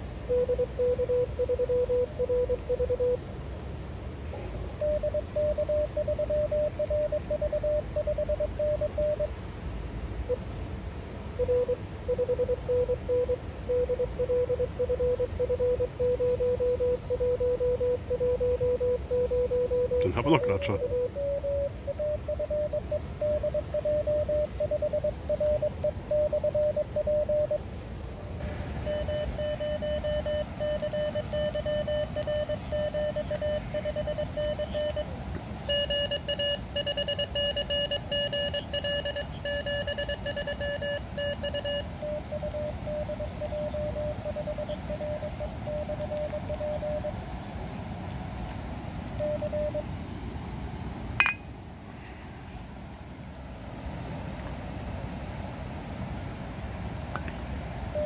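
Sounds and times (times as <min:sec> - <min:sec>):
morse code tones: 0:00.2 - 0:03.3, 0:04.8 - 0:09.3, 0:11.4 - 0:27.6, 0:28.4 - 0:47.2, 0:49.2 - 0:49.9
higher-pitched morse signal: 0:00.3 - 0:03.2, 0:04.8 - 0:09.3, 0:11.4 - 0:27.6, 0:28.4 - 0:47.2, 0:49.2 - 0:49.9
radio hiss: 0:19.8 - 0:26.5, 0:27.2 - 0:38.5, 0:39.2 - 0:47.1.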